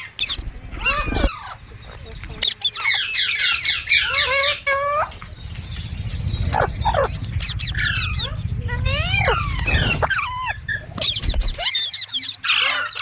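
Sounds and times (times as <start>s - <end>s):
parrots calling and squawking: 0.0s - 13.0s
low steady hum: 3.2s - 11.8s.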